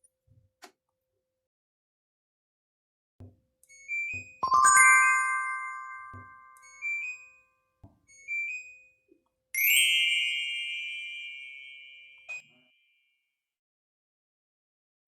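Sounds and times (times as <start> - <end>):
bell-like ding: 4.4 - 7.2.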